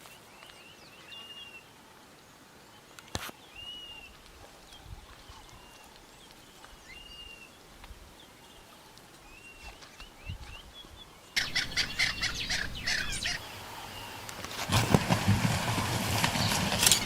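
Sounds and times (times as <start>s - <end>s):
high-pitched chattering calls: 11.4s - 13.4s
faint bird chirps: 11.4s - 14.2s.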